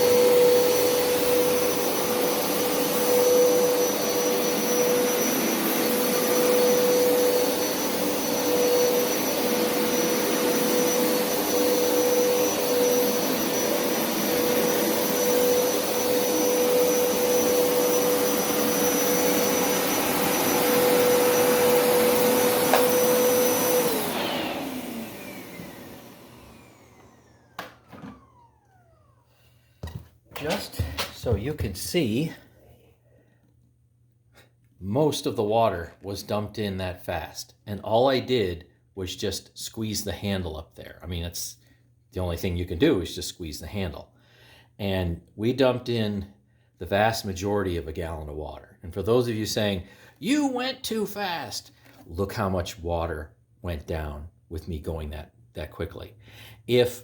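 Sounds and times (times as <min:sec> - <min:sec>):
carpet washer motor whining: 0:00.0 - 0:29.2.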